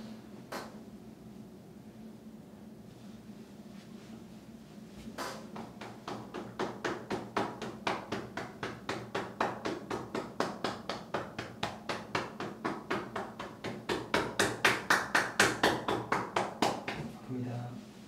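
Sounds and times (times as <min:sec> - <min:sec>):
hands slapping on body: 0:05.1 - 0:17.2.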